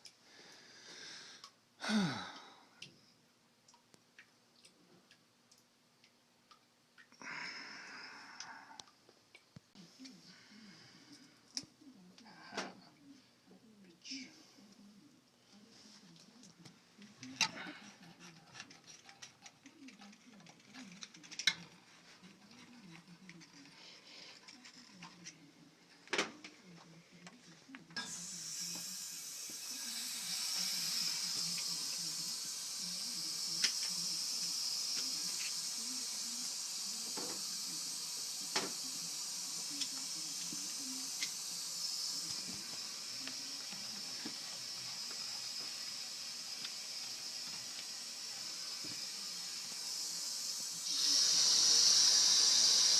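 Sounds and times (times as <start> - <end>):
water hissing through valve: 28.0 - 52.9.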